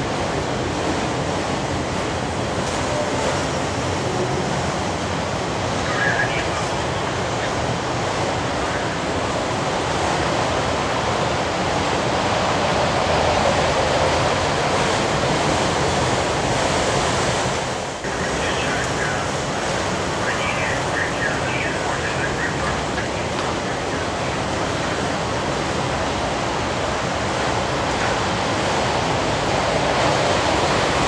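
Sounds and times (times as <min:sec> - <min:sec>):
freight train wheels on rails: 0:22.2 - 0:31.0.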